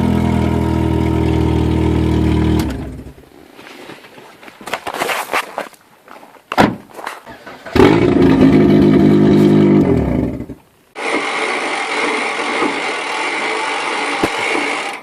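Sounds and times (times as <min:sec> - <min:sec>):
car engine at high revs: 0:00.0 - 0:03.1, 0:07.8 - 0:15.0.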